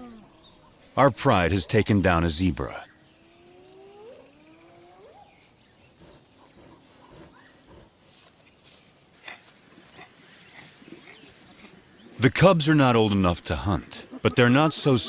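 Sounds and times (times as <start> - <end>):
high bird chirps: 2.8 - 9.4
hyenas whooping: 3.3 - 7.9
faint soft rustles: 7.7 - 11.8.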